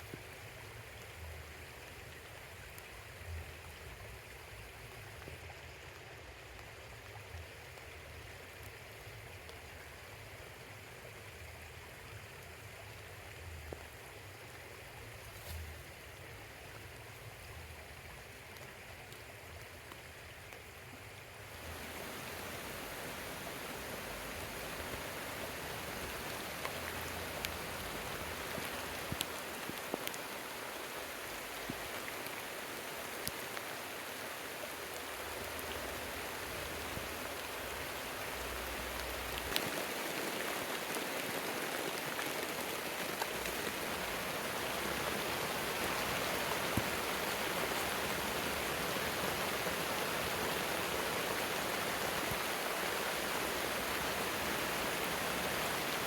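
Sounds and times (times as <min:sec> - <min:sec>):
heavy rain falling: 0:21.6 - 0:56.0.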